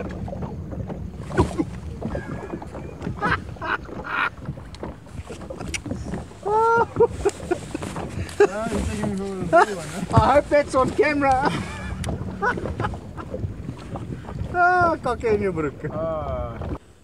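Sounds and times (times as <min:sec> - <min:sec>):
steady low hum: 0:00.0 - 0:07.3, 0:08.2 - 0:15.0
knocks and rustles from casting: 0:00.0 - 0:14.4
light wind: 0:00.0 - 0:17.0.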